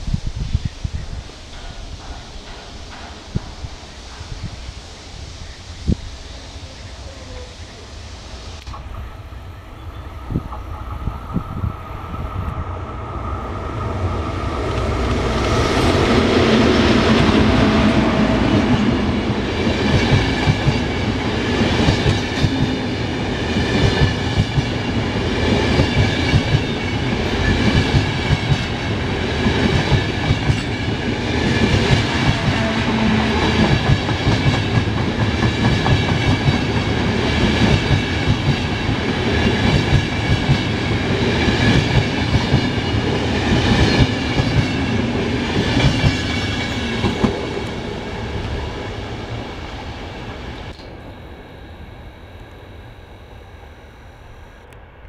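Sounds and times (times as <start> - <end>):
train rumble: 0.0 - 52.6
train wheels clattering: 1.4 - 4.7.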